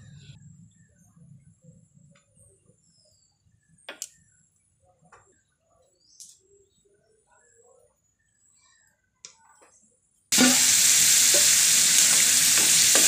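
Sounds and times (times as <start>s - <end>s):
faint bird chirps: 0.0s - 10.2s.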